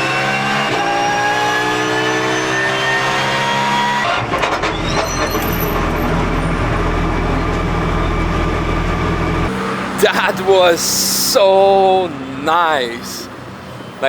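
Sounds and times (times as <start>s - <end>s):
race car engine revving: 0.0s - 11.2s.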